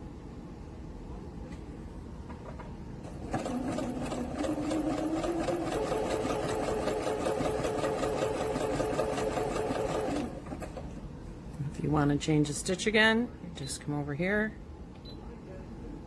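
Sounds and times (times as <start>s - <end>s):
sewing machine sewing: 3.0s - 10.9s.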